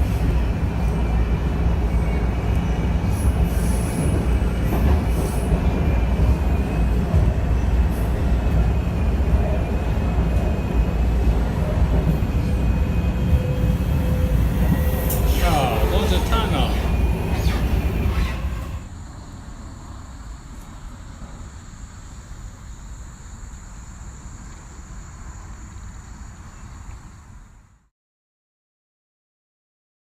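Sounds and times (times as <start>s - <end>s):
train cars rumbling: 0.0s - 19.4s
high wheel squeal: 13.3s - 18.9s.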